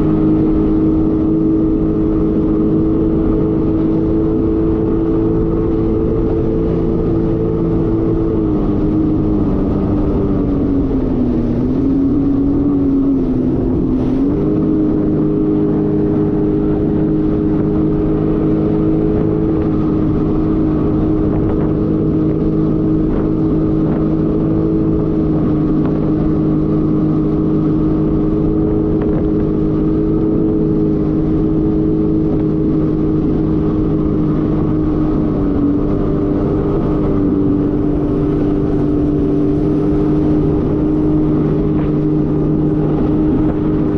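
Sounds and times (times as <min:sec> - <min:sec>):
jet ski engine running: 0:00.0 - 0:43.9
water noise: 0:00.0 - 0:43.9.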